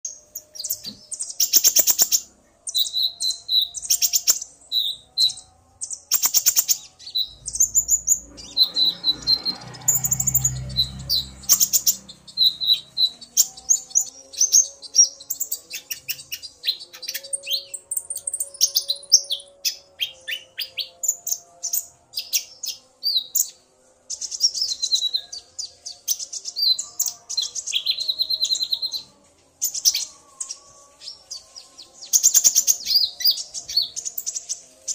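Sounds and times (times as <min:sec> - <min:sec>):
sunbirds chirping and trilling: 0:00.0 - 0:34.9
low rumble: 0:07.2 - 0:13.4.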